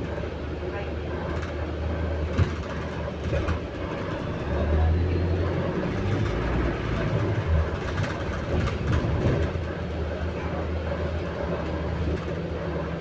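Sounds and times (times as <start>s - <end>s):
bus engine drone: 0.0s - 13.0s
rattling and clattering: 1.2s - 4.4s, 6.0s - 10.5s.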